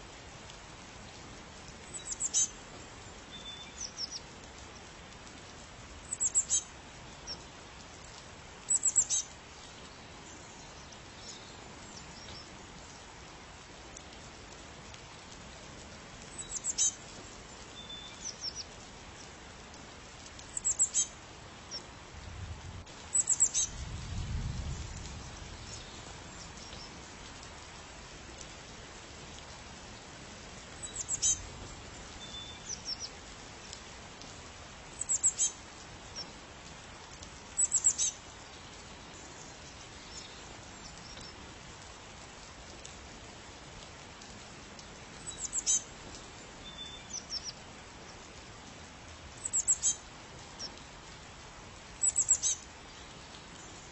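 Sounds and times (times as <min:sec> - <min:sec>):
steady background hiss: 0:00.0 - 0:53.9
bird chirping: 0:08.7 - 0:09.2, 0:16.4 - 0:16.9, 0:20.6 - 0:21.1, 0:23.2 - 0:23.7, 0:49.4 - 0:50.0, 0:52.0 - 0:52.6.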